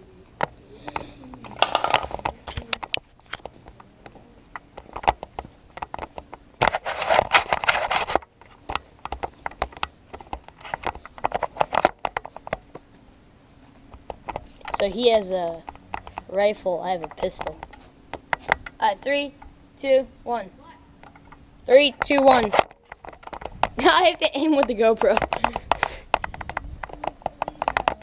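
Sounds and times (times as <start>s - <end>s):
scraping and rustling: 0.7s - 18.8s
gear clicking and knocking: 22.0s - 28.0s.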